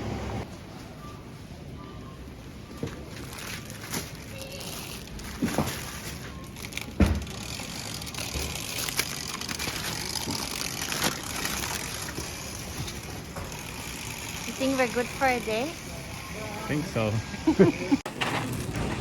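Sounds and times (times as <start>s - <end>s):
groceries rustling and knocking: 2.7s - 13.6s.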